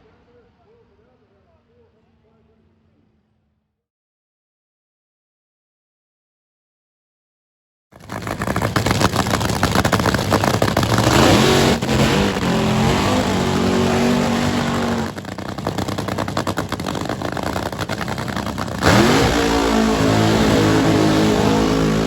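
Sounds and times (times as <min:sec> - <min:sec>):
racing car engine revving: 0:08.1 - 0:22.0.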